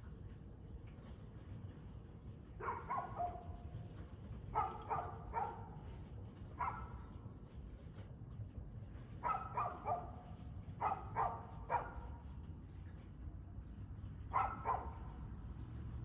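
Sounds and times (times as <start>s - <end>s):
dog barking: 2.6s - 3.5s, 4.6s - 5.7s, 6.6s - 6.9s, 9.2s - 10.2s, 10.8s - 12.1s, 14.3s - 15.0s.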